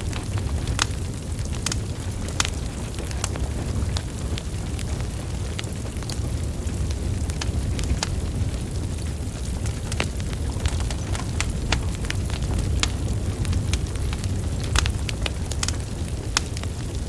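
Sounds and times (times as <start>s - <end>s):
low rumble of flames: 0.0s - 17.0s
wood logs crackling: 0.0s - 17.0s.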